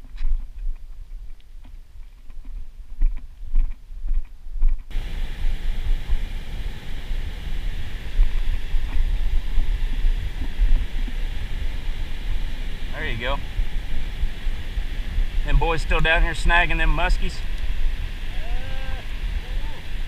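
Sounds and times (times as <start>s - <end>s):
wind rumbling on microphone: 0.0s - 20.0s
steady rushing hiss: 4.9s - 20.0s.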